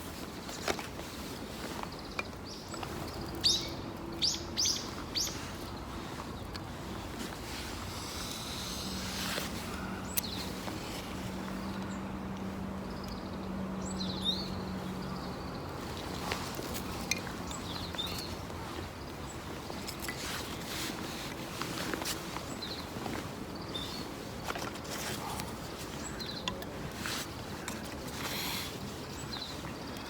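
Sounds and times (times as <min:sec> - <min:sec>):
bird chirps: 0:02.6 - 0:05.4.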